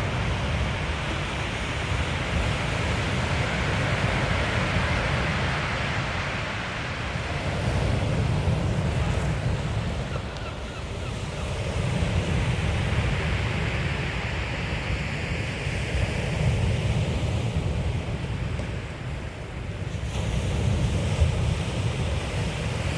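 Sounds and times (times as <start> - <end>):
wind buffeting microphone: 0.0 - 14.3
waves washing on shingle beach: 0.0 - 22.9.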